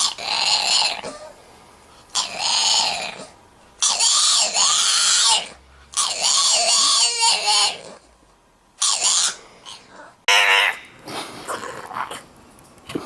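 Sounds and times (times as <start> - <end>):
dog yowling: 0.0 - 1.4, 2.2 - 8.0, 8.8 - 10.9.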